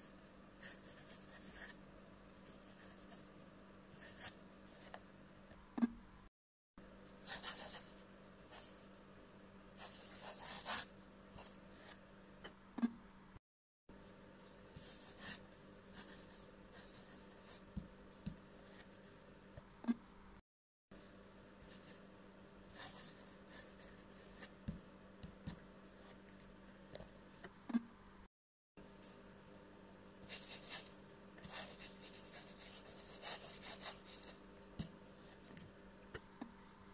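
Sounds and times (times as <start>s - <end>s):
faint steady hum: 0.0s - 36.9s
pen scratching on paper: 0.6s - 1.8s, 7.3s - 7.9s, 9.8s - 12.0s, 30.3s - 34.9s.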